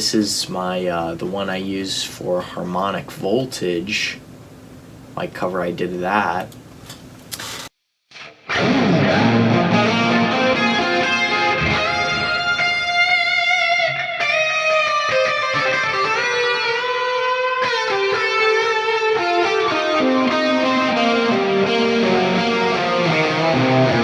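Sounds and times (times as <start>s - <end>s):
electric guitar lead line: 8.2s - 24.0s.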